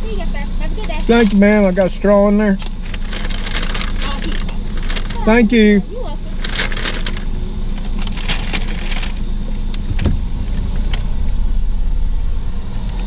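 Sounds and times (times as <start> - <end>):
car engine idling: 0.0 - 13.0
paper bag crinkling: 2.6 - 7.3, 7.9 - 9.2.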